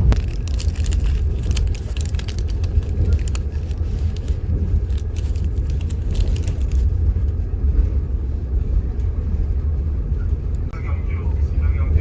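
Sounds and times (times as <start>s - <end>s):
train rumbling inside carriage: 0.0s - 12.0s.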